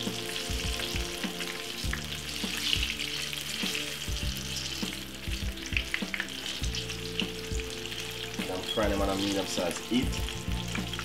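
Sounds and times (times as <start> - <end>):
fritters sizzling in oil: 0.0 - 11.0.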